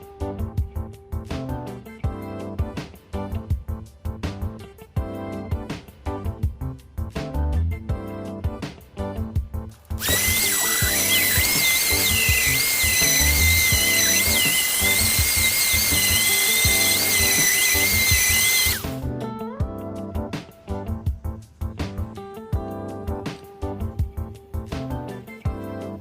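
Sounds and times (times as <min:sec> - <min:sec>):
power sander whine on wood: 0:10.0 - 0:19.0.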